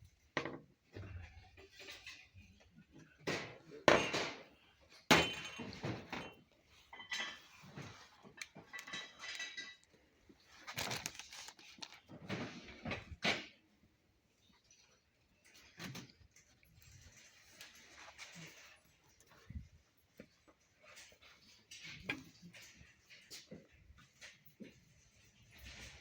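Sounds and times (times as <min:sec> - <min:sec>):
dishes clinking: 0:03.3 - 0:10.0.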